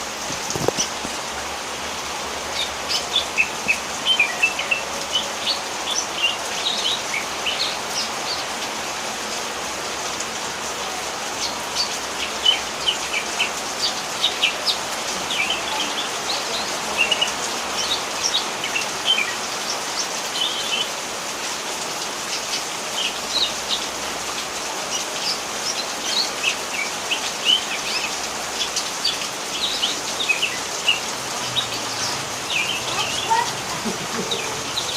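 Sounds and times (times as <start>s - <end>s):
rain falling: 0.0s - 34.9s.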